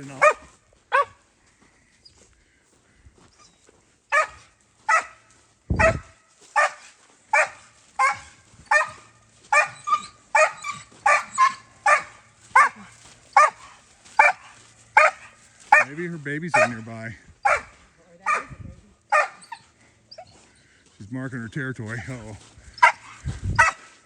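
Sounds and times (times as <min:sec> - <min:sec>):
dog barking: 0:00.1 - 0:01.2, 0:04.1 - 0:15.9, 0:16.5 - 0:16.8, 0:17.4 - 0:19.7, 0:22.8 - 0:23.9.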